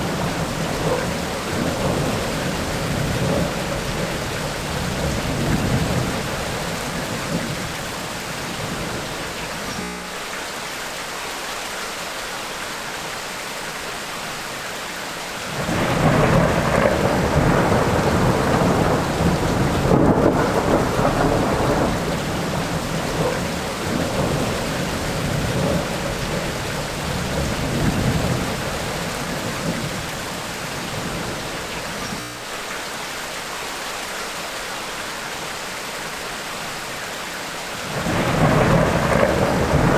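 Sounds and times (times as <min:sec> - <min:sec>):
rolling thunder: 0:00.0 - 0:09.8, 0:15.5 - 0:32.2, 0:37.8 - 0:39.9
steady rain: 0:00.0 - 0:39.9.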